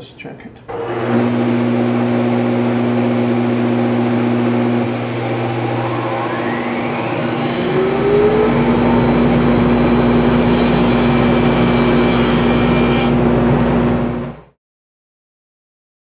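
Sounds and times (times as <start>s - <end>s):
table saw cutting wood: 0.7s - 14.3s.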